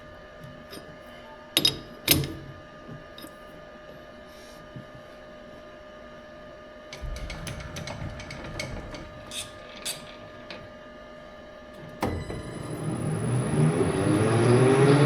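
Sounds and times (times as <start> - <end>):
machine hum: 6.8 - 15.0
sharp mechanical clicks and knocks: 6.9 - 10.7.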